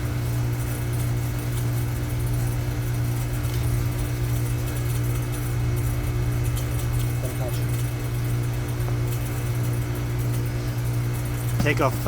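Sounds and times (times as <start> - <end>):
air conditioner unit humming: 0.0 - 12.0.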